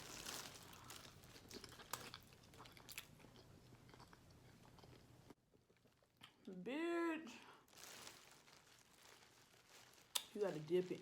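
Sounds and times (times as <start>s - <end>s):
chewing food: 1.4s - 6.4s.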